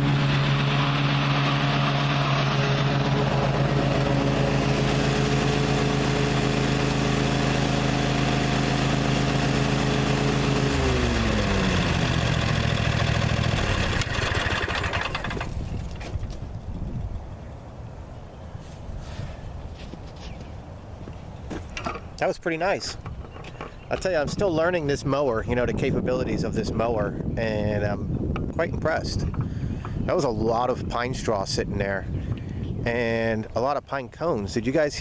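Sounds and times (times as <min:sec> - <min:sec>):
lawn mower engine running: 0:00.0 - 0:16.4, 0:22.8 - 0:25.1.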